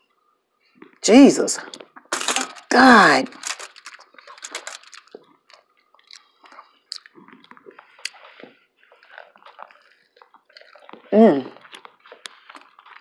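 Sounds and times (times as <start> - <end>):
person chewing food: 3.4 - 13.0.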